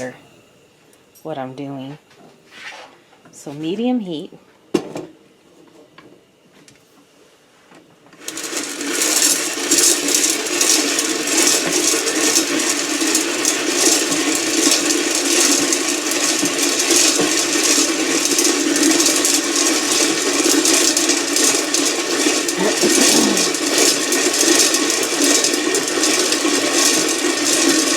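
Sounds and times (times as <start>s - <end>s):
popcorn popper crank rattling scrape: 8.2s - 27.9s.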